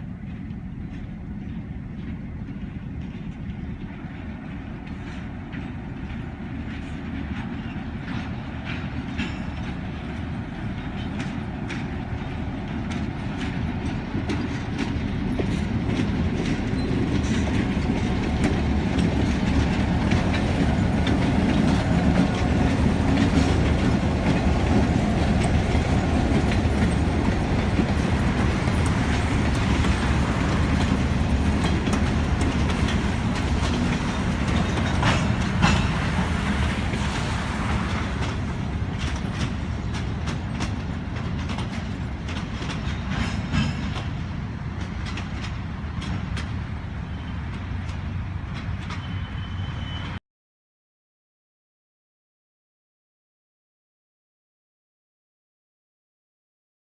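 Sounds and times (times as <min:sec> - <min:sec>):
freight train rumbling past: 0:00.0 - 0:50.2.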